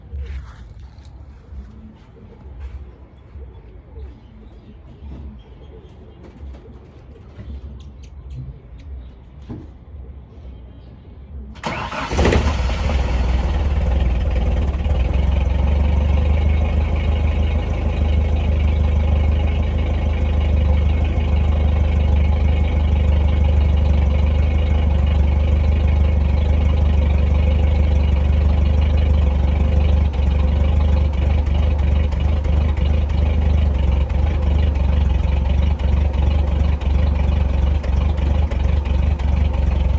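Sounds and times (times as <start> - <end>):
engine starter clicks: 11.6 - 15.0
car engine starting and idling: 11.6 - 39.9.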